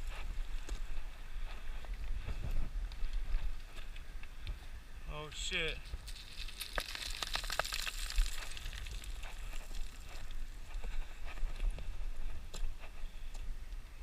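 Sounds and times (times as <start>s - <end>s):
wind rumbling on microphone: 0.0s - 5.1s, 5.8s - 14.0s
light clicks and crackles: 5.8s - 11.9s.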